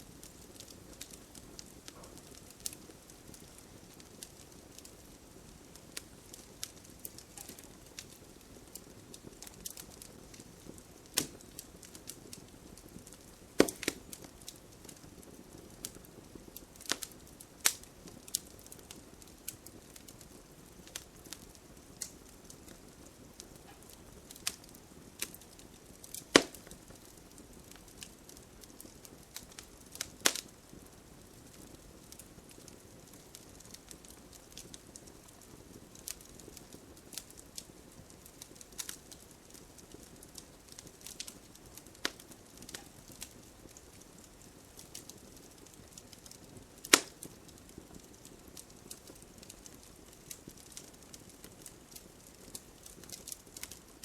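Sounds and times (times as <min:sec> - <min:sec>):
campfire flames hissing and crackling: 0:00.0 - 0:54.0
sharp loud fire pops: 0:13.6 - 0:14.0, 0:26.4 - 0:26.7.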